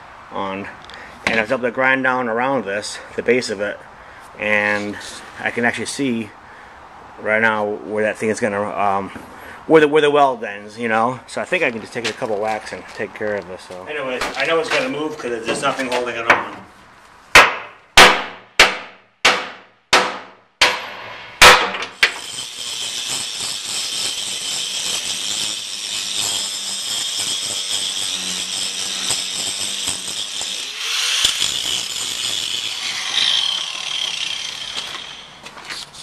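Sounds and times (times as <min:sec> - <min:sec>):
angle grinder whining: 0:21.9 - 0:35.8.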